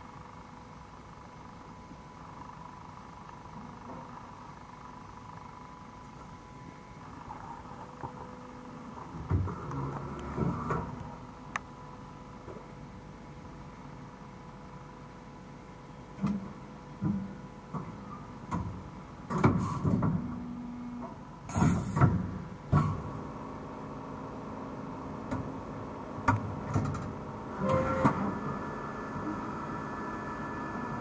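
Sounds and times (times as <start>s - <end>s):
machine hum and whine: 0.0s - 31.0s
mechanical clunks and knocks: 9.1s - 11.0s, 16.2s - 20.4s, 26.2s - 28.4s.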